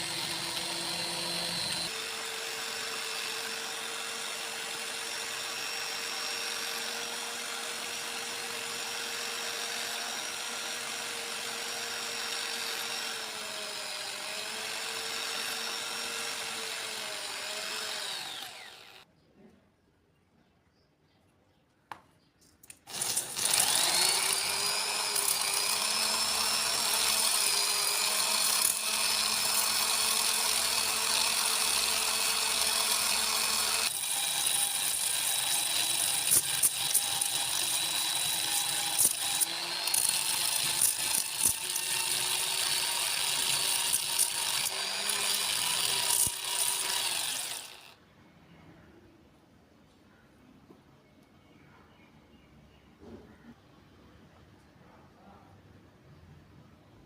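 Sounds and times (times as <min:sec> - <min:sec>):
electric power tool whining: 0:00.0 - 0:19.0, 0:22.8 - 0:48.0.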